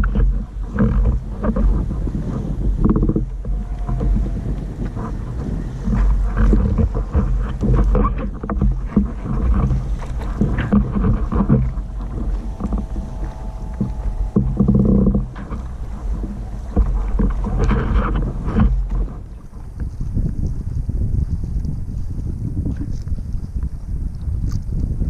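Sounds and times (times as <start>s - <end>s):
wind and water rumbling: 0.0s - 25.0s
knocks and clicks: 2.8s - 19.4s
faint steady tone: 10.6s - 19.0s.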